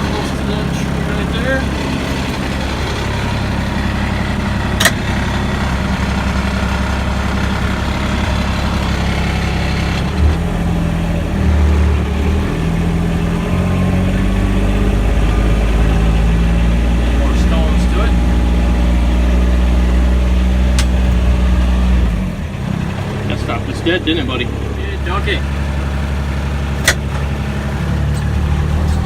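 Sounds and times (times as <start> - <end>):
tractor diesel engine running: 0.0 - 29.0
sharp click: 20.8 - 21.0, 26.8 - 27.2.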